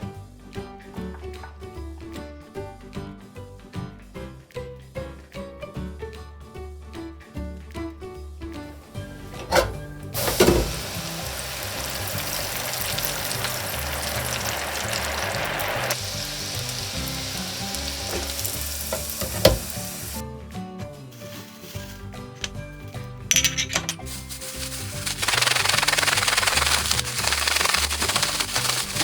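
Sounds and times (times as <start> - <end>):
pasta sizzling in hot oil: 10.2 - 20.2, 24.0 - 29.0.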